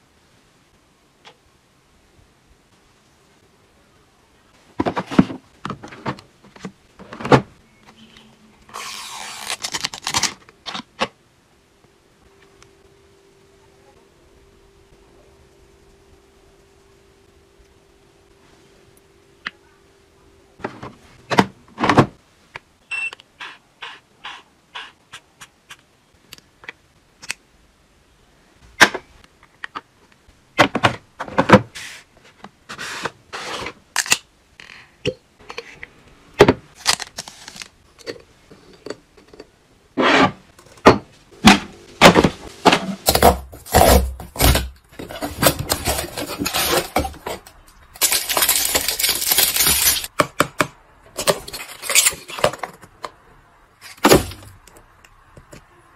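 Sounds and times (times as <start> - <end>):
items knocking and scraping: 4.7 - 8.0, 20.6 - 22.2, 30.6 - 33.8, 38.0 - 53.2.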